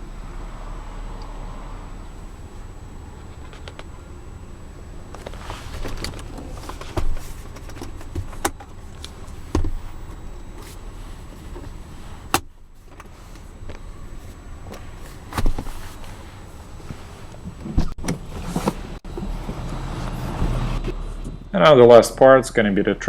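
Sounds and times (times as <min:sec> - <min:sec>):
shuffling and rustling: 0:05.0 - 0:21.0.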